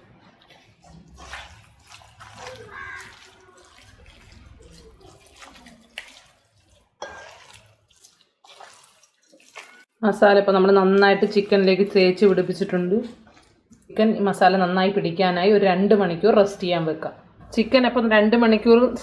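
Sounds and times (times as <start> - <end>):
hands squishing wet paste into meat: 0.0 - 10.0, 11.0 - 13.9
wet squelches and slaps: 0.3 - 10.0, 11.0 - 13.9.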